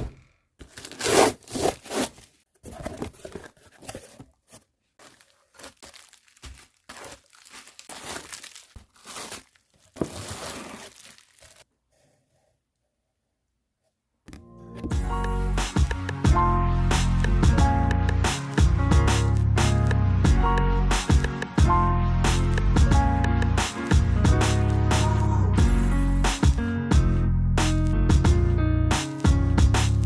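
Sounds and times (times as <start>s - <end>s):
packaging tearing and crinkling: 0.6s - 4.3s, 5.0s - 11.6s.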